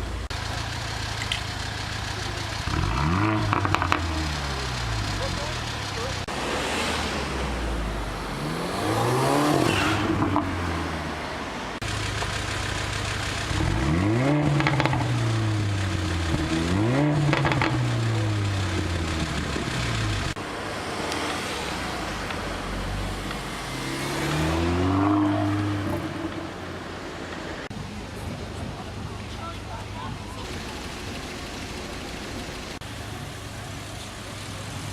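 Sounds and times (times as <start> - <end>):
car engine accelerating hard: 0.0 - 27.8.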